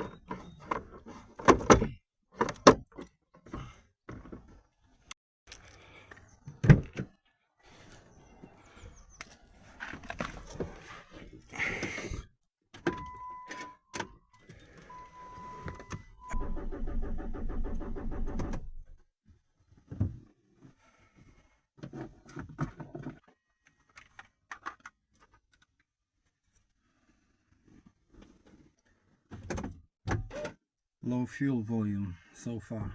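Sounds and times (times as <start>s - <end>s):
warning chime: 14.9s - 16.0s
starter cranking engine: 16.3s - 19.0s.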